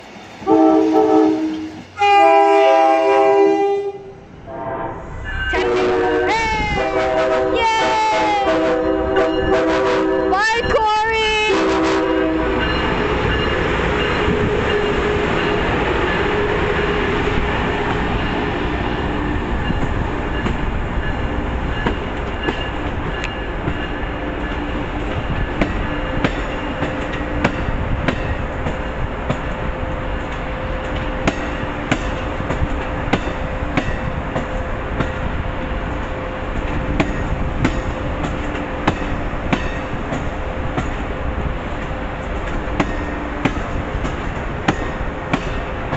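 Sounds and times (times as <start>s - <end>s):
train rumbling on track: 0.0s - 45.9s.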